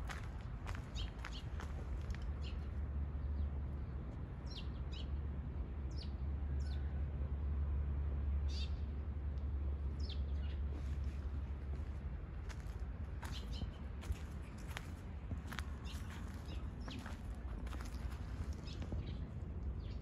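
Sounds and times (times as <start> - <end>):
small birds chirping: 0.6 - 3.4, 13.2 - 20.0
steady low rumble: 8.7 - 20.0.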